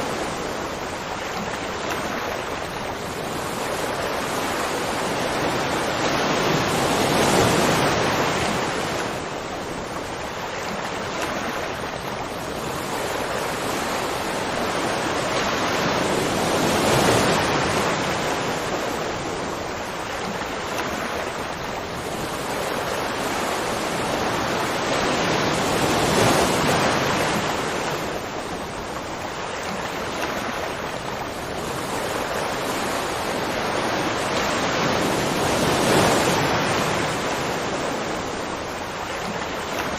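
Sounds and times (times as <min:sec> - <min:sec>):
rushing water roar: 0:00.0 - 0:39.9.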